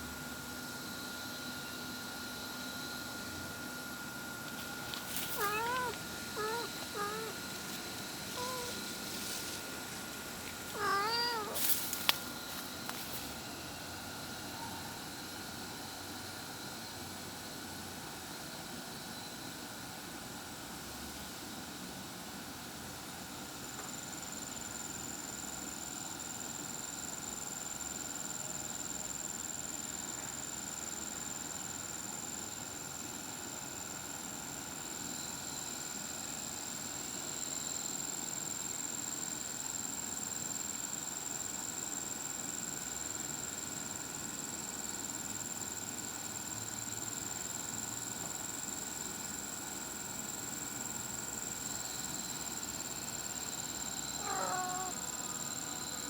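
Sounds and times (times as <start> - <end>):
background hiss: 4.3 - 13.9.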